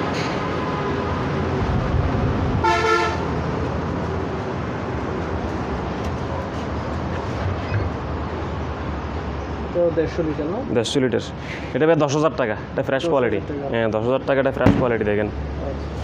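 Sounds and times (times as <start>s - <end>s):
road traffic rumble: 0.0s - 16.0s
vehicle horn toot: 2.6s - 3.3s.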